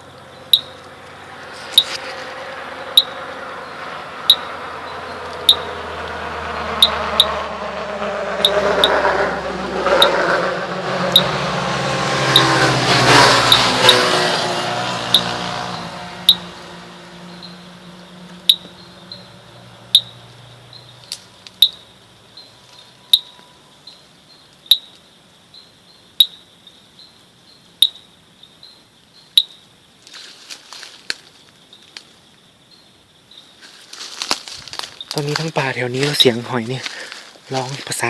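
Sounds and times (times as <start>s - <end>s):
vehicle passing: 0.0s - 23.6s, 33.6s - 38.0s
sharp clicking animal calls: 0.2s - 1.1s, 1.7s - 2.1s, 2.9s - 3.2s, 4.2s - 4.6s, 5.2s - 6.2s, 6.8s - 7.4s, 8.4s - 9.1s, 9.9s - 10.3s, 11.1s - 11.3s, 12.3s - 12.5s, 18.2s - 18.8s, 19.9s - 20.4s, 21.0s - 21.8s, 22.7s - 23.6s, 24.5s - 25.1s, 26.2s - 26.4s, 27.8s - 28.1s, 29.3s - 29.6s.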